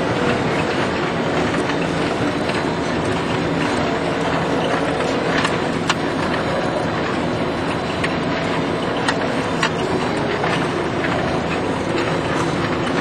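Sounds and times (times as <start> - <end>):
forage harvester running: 0.0 - 13.0.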